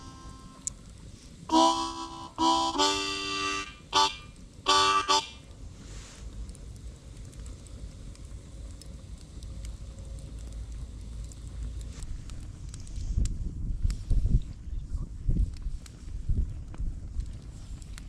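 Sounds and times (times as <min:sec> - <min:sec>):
harmonica chords: 0:01.5 - 0:05.4.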